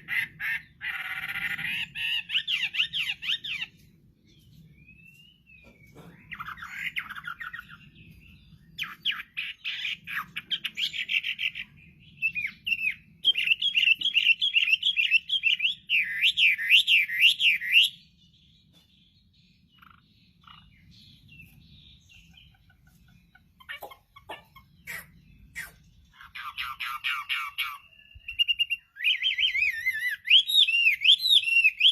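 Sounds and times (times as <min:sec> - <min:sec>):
bird singing whistled phrases: 0:26.4 - 0:31.9.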